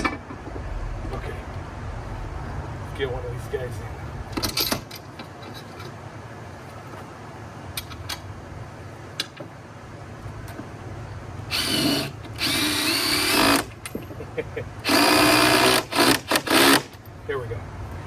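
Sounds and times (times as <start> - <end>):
drill driving screw into wall: 11.5 - 13.8, 14.8 - 17.0.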